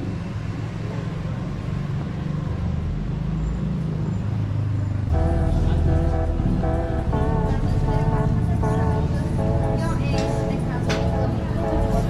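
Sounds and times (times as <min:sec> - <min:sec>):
vehicle engine rumble: 0:00.0 - 0:12.0
music: 0:05.1 - 0:12.0.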